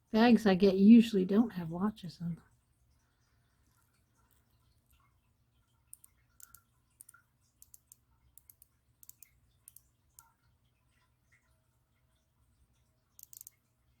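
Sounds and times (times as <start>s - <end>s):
small metal jewelry clinking: 13.2s - 13.5s.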